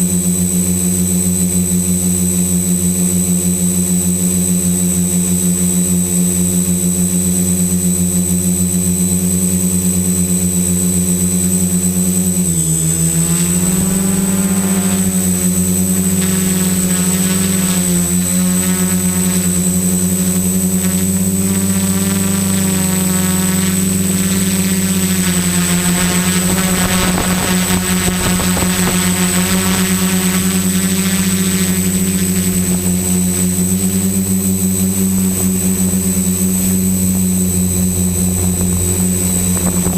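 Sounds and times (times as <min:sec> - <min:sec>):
quadcopter motors buzzing: 0:00.0 - 0:39.9
thin high whine: 0:08.5 - 0:39.9.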